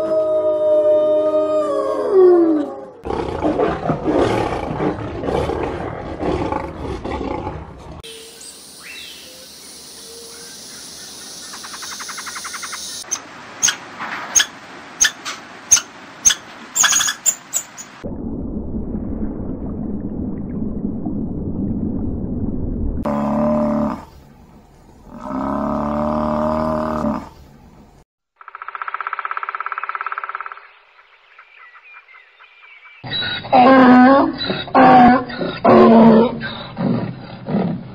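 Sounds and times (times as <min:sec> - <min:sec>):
wolf howling: 0:00.0 - 0:03.1, 0:33.4 - 0:36.5
lion growling and roaring: 0:02.0 - 0:08.0, 0:23.0 - 0:24.3, 0:25.0 - 0:27.4, 0:33.5 - 0:37.9
low steady rumble: 0:18.0 - 0:23.1.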